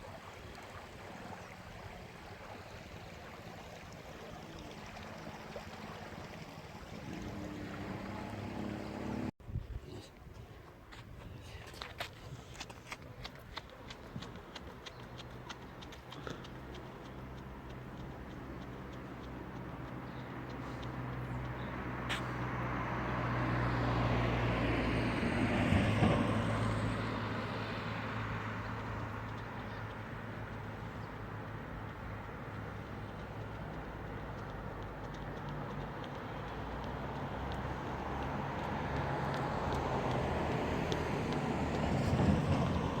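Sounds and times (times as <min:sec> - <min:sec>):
rushing traffic noise: 0:00.7 - 0:09.4, 0:13.7 - 0:43.0
motor vehicle humming: 0:04.3 - 0:09.4, 0:15.7 - 0:43.0.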